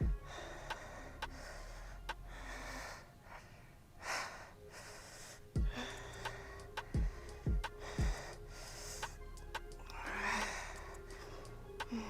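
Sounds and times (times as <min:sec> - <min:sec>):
woman breathing hard: 0:00.0 - 0:09.2, 0:09.9 - 0:12.0.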